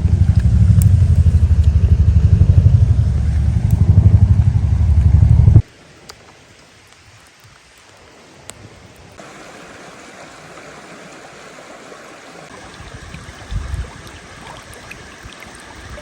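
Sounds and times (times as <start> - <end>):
low pulsing engine rumble: 0.0 - 5.6.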